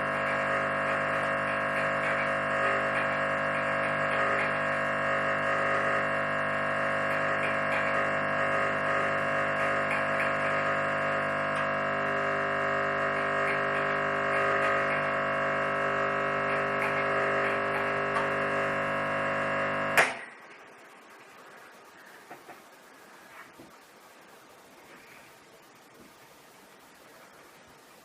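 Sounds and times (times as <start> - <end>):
espresso machine pump buzzing: 0.0 - 20.2.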